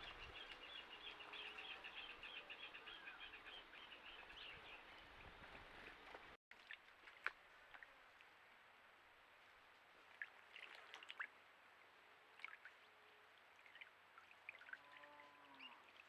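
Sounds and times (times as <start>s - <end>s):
water splashing and dripping: 5.0s - 8.8s, 9.4s - 16.0s.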